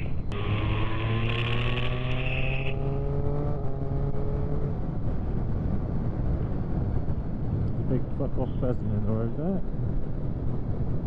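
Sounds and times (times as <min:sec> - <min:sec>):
motorcycle engine accelerating: 0:00.0 - 0:06.3
wind rumble on microphone: 0:02.7 - 0:11.0.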